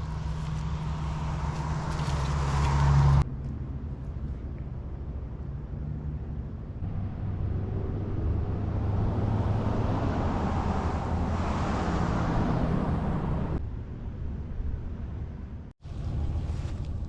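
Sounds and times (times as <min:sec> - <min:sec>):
car passing on road: 0:00.0 - 0:03.3, 0:06.8 - 0:13.6.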